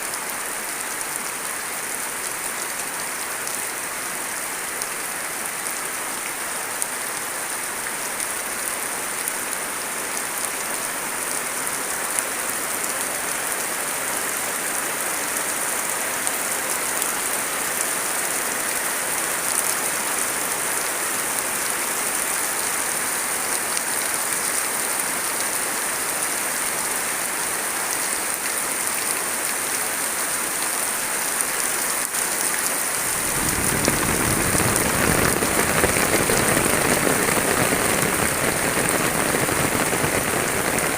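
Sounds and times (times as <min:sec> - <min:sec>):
steady rain patter: 0:00.0 - 0:40.9
deep rushing noise: 0:33.1 - 0:40.9.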